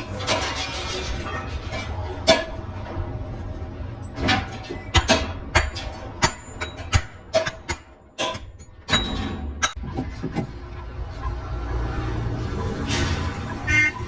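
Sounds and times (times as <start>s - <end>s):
metal clanks with high ring: 4.4s - 9.8s.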